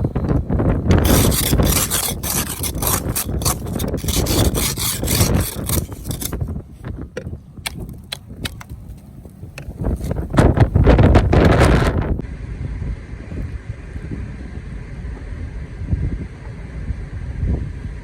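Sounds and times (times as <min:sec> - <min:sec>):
crunching scrapes in snow: 0:01.0 - 0:06.4.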